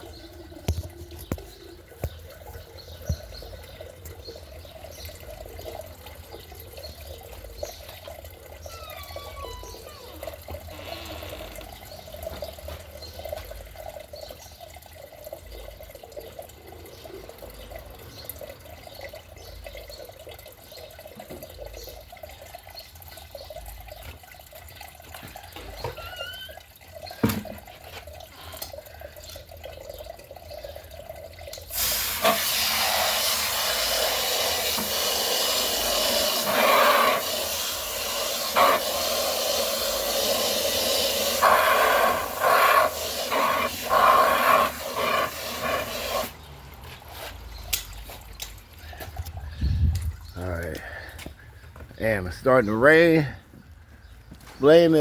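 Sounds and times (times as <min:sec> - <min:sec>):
water trickling: 0:00.0 - 0:55.0
hiss of falling water: 0:31.7 - 0:46.5.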